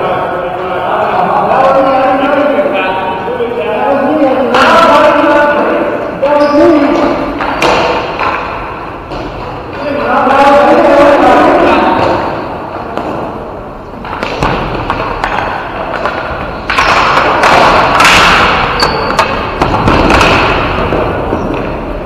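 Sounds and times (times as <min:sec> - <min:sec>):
noisy arena background: 0:00.0 - 0:22.0
sticks and ball hitting boards: 0:07.0 - 0:10.1, 0:14.0 - 0:22.0.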